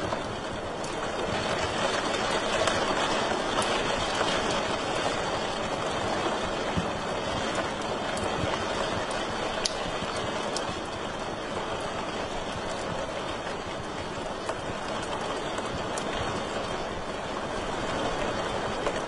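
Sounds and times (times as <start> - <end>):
fire crackling pops: 7.8 - 10.7.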